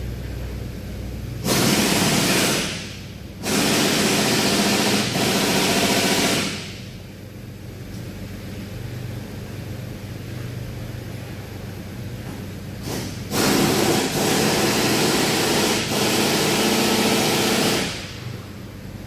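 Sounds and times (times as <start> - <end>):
steady low hum: 0.0 - 19.0
compressed-air tool running: 1.4 - 7.0, 12.8 - 18.2.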